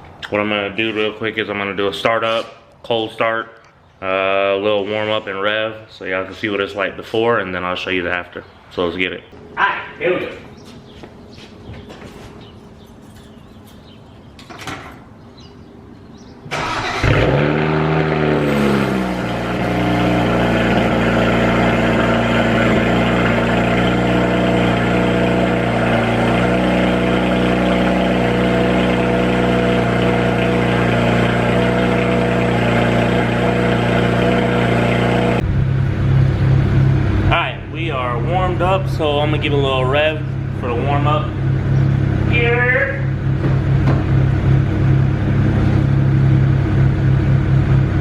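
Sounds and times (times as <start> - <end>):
car starter cranking: 16.5 - 18.9
car engine revving and idling: 16.5 - 48.0.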